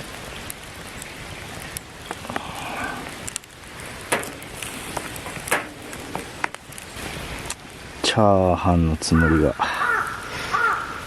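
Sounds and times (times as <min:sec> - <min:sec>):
rice sizzling in a frying pan: 0:00.0 - 0:08.8.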